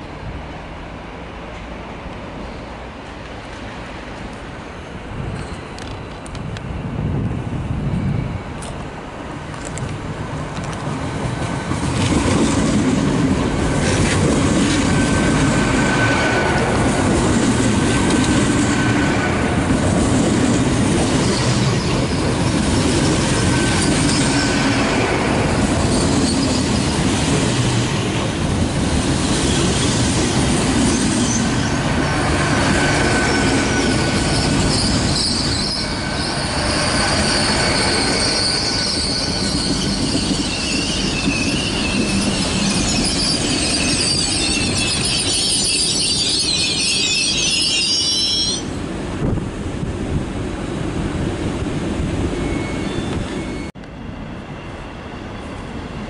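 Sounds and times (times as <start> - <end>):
train wheels rumbling on rails: 0.0 - 56.0
high wheel squeal: 21.0 - 27.3, 30.8 - 48.8, 52.4 - 53.7.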